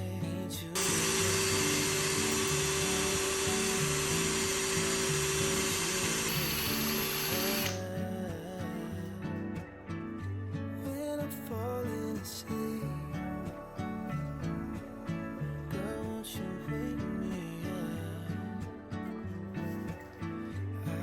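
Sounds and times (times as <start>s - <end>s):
background music: 0.0s - 21.0s
cordless drill whining: 0.8s - 7.8s.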